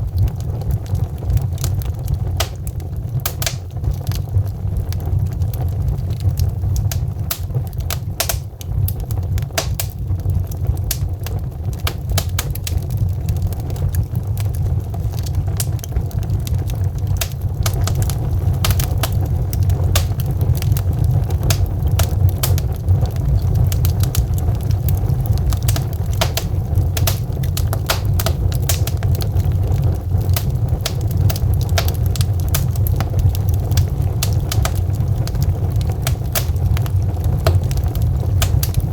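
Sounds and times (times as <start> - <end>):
fire crackling: 0.0 - 38.9
low rumble of fire: 0.0 - 38.9
sharp pops and snaps: 2.4 - 3.9, 6.8 - 10.0, 10.9 - 12.8, 16.6 - 24.3, 25.3 - 29.0, 30.3 - 38.9.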